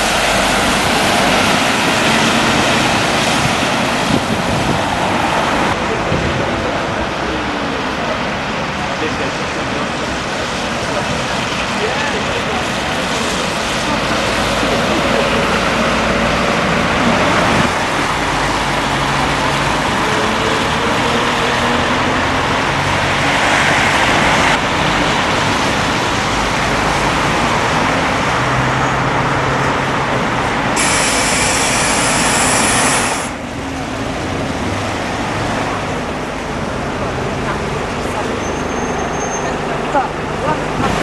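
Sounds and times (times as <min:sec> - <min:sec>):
traffic with engines running: 0:00.0 - 0:41.0
high hiss: 0:30.8 - 0:33.4.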